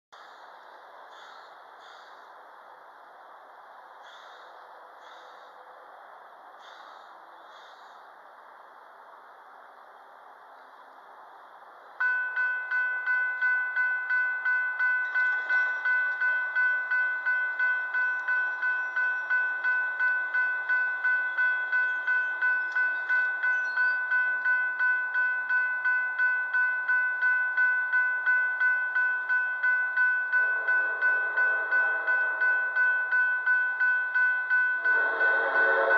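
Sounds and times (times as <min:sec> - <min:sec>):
railroad crossing bell ringing: 0:12.0 - 0:35.9.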